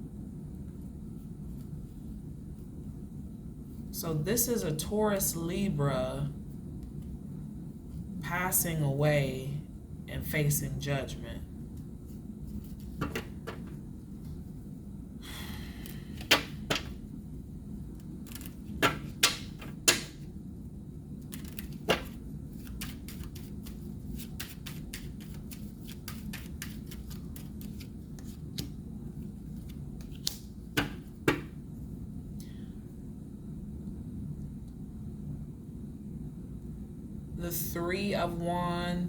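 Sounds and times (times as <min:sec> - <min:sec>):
cards snapping and tapping on table: 0:12.9 - 0:13.8, 0:16.2 - 0:17.0, 0:18.3 - 0:20.2, 0:21.3 - 0:23.8, 0:30.0 - 0:31.5
cards rustling: 0:18.2 - 0:20.1, 0:21.2 - 0:31.5.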